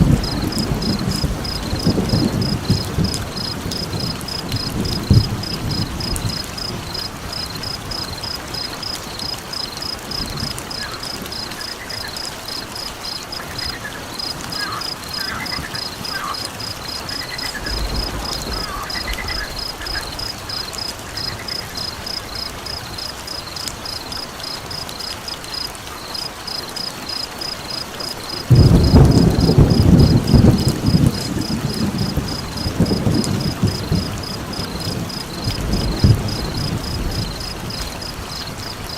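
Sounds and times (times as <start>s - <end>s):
low rumble of thunder: 0.0s - 9.0s, 15.2s - 23.0s, 28.3s - 38.9s
cricket trilling: 0.0s - 38.9s
frogs calling: 0.0s - 38.9s.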